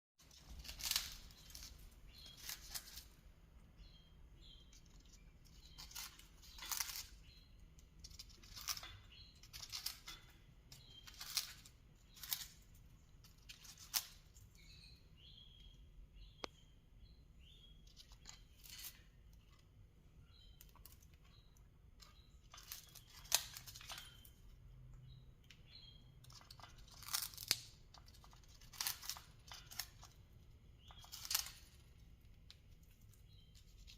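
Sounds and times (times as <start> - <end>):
soft bird chirps: 0.2 - 33.9
parrot crunching toy with beak: 0.3 - 3.2, 4.6 - 14.8, 20.6 - 24.5, 26.0 - 33.9.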